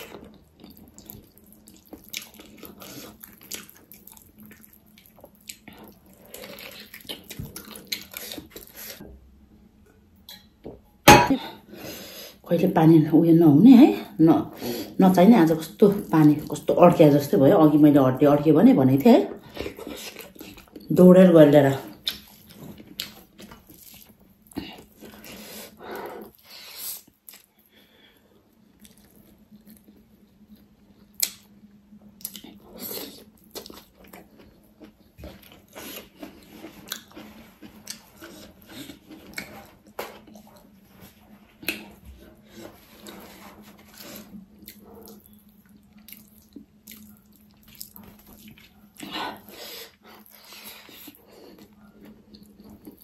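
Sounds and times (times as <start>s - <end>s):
wet chewing: 0.0s - 9.0s, 21.9s - 27.5s, 32.2s - 53.0s.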